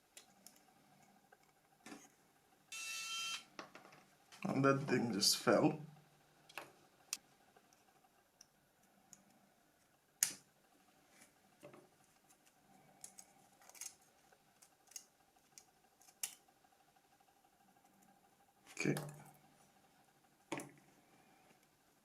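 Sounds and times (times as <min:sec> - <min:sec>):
plastic phone parts clicking: 0:13.0 - 0:14.0, 0:14.6 - 0:16.4.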